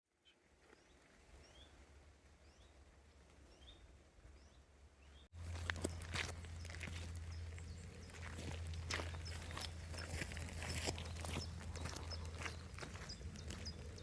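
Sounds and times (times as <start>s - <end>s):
bird chirping: 3.5s - 14.0s.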